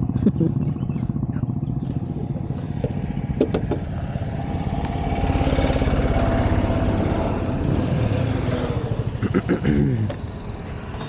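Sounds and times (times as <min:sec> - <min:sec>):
motorcycle engine idling: 0:00.0 - 0:07.6.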